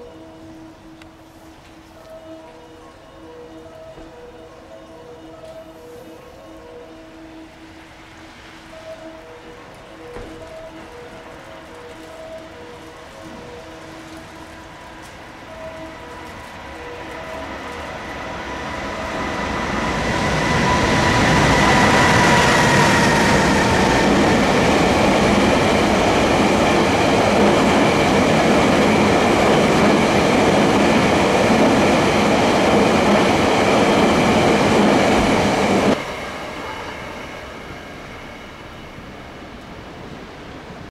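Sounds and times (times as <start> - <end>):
train wheels rumbling on rail: 9.7 - 40.8.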